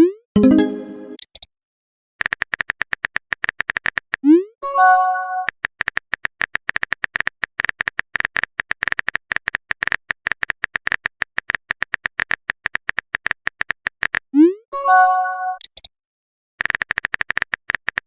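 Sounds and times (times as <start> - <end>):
phone keyboard typing clicks: 5.4 - 14.2, 16.6 - 18.0.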